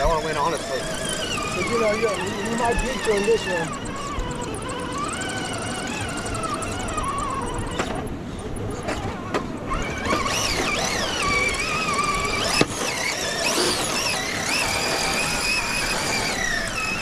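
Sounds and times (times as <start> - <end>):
rc truck electric motor whining: 0.0 - 17.0.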